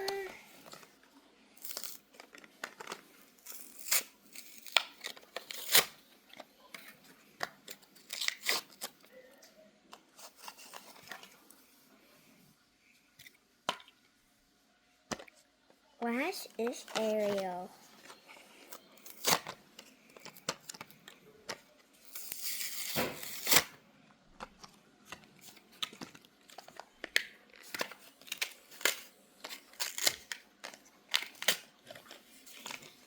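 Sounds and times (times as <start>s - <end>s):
packaging tearing and crinkling: 1.6s - 6.0s, 7.7s - 9.0s, 19.0s - 19.6s, 20.2s - 23.8s, 25.4s - 33.0s
packaging snaps and clicks: 1.6s - 9.1s, 18.7s - 23.8s, 24.4s - 33.0s.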